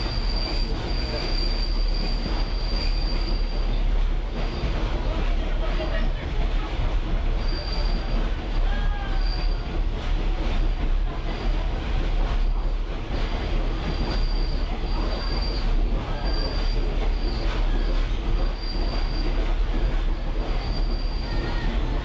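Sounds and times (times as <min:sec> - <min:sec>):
wheels squealing: 0:00.0 - 0:04.7
railcar rolling rumble: 0:00.0 - 0:22.0.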